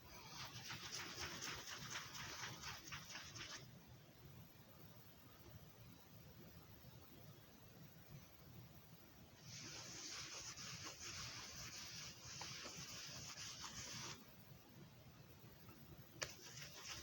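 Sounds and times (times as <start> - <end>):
hissing rub of disc surface: 0.1 - 3.6, 9.4 - 14.2, 16.2 - 17.0.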